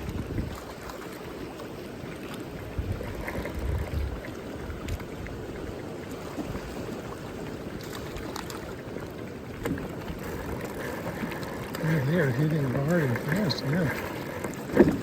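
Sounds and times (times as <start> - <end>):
wind buffeting microphone: 0.0 - 0.8, 2.6 - 5.8
flowing water rushing: 0.0 - 15.0.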